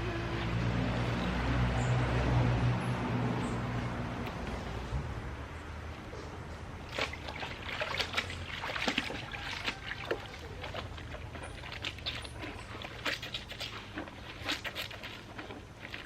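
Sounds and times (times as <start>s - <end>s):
clothes splashing in water: 6.8s - 16.0s.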